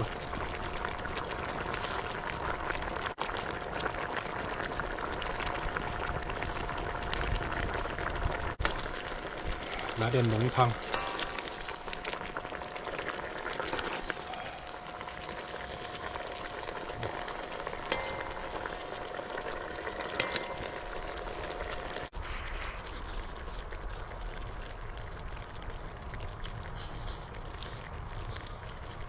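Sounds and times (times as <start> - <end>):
pot bubbling and fizzing: 0.0 - 29.0
ladle clinking on metal: 20.1 - 20.8.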